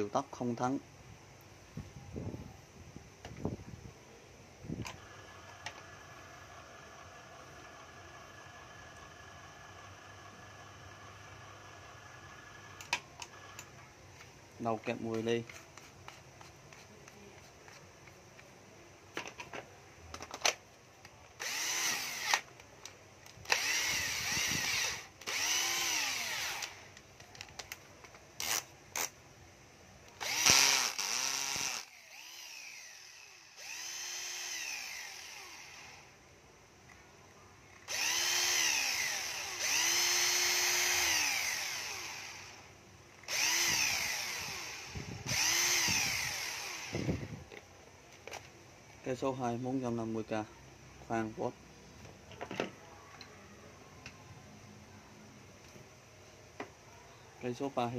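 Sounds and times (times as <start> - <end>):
cordless drill motor whining: 4.9 - 13.8, 21.4 - 22.6, 23.2 - 27.0, 28.4 - 29.1, 30.2 - 36.2, 37.8 - 47.6.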